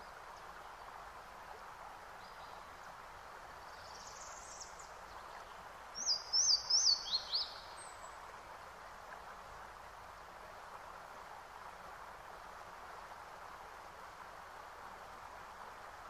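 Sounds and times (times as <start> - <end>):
outdoor background hiss: 0.0 - 16.0
bird chirping: 6.0 - 8.1.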